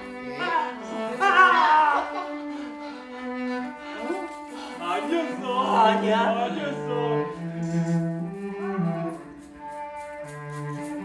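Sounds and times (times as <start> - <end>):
bowed strings playing held notes: 0.0 - 11.0.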